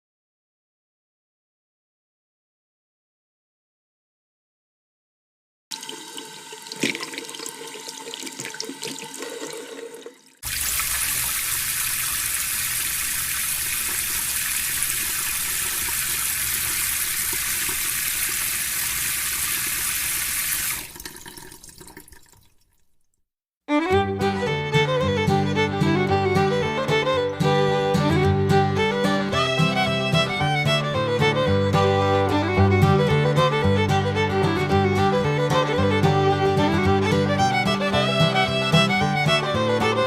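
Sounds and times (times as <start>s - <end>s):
water rushing: 5.8s - 22.5s
music: 23.7s - 40.0s.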